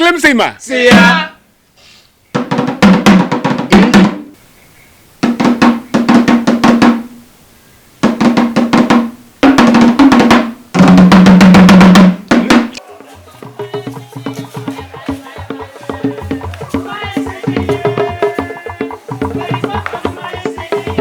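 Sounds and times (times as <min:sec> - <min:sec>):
rapid drum rolls: 0:02.4 - 0:04.2, 0:05.2 - 0:07.1, 0:08.0 - 0:21.0.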